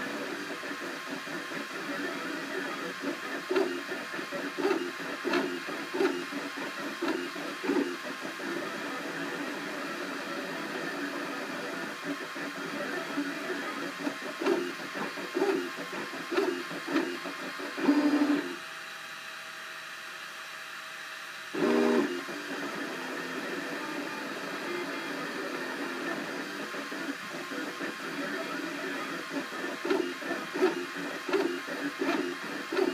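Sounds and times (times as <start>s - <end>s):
stepper motors buzzing: 0.2s - 18.6s, 21.6s - 24.6s, 25.4s - 32.9s.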